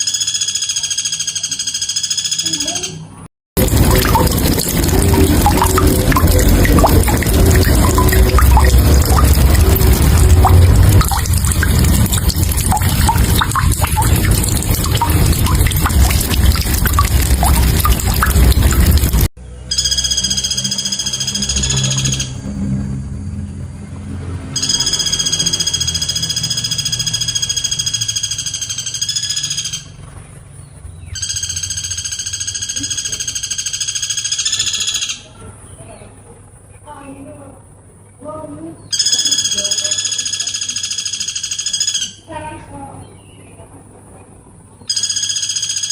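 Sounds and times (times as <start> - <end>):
heavy low rumble: 3.6 - 19.3
running water splashing: 3.6 - 19.3
water drips plopping: 3.6 - 19.3
woodpecker trilling: 24.6 - 30.0, 31.0 - 35.3, 38.9 - 42.3, 44.9 - 45.9.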